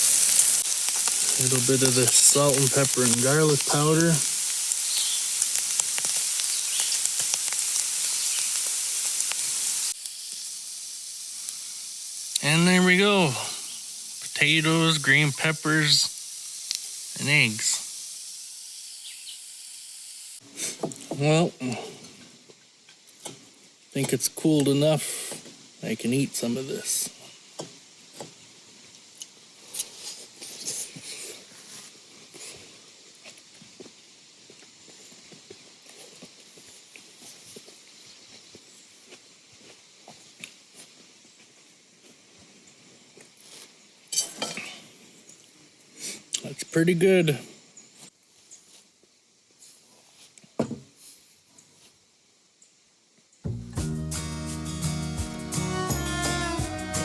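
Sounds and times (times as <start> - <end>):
oil pops and crackles: 0.0 - 10.6
vegetables sizzling in oil: 0.0 - 20.7.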